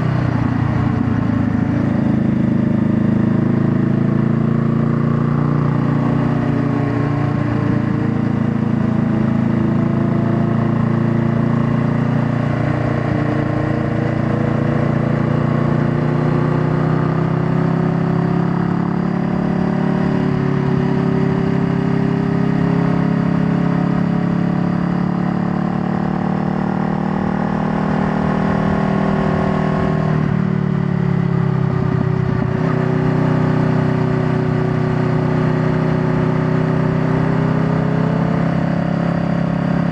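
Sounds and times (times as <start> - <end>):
motorcycle engine running: 0.0 - 39.9
low wind rumble: 28.5 - 33.1.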